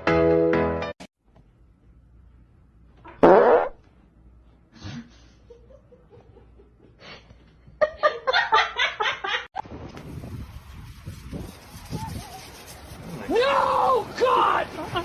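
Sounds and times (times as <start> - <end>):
fart-like noise: 3.1 - 3.8
person laughing: 14.6 - 15.0.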